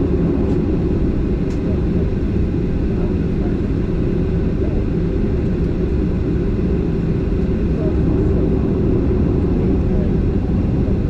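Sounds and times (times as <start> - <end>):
jet engines rumbling in cabin: 0.0 - 11.0.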